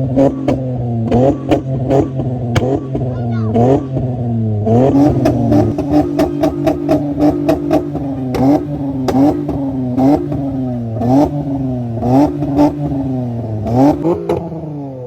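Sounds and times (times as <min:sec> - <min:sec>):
exhaust crack: 0:00.0 - 0:14.8
car engine revving: 0:00.0 - 0:15.0.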